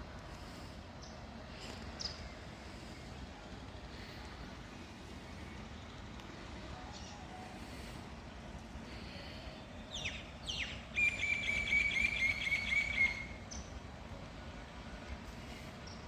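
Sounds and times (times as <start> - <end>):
outdoor background hiss: 0.0 - 16.0
small bird singing: 2.0 - 2.4, 9.8 - 13.8.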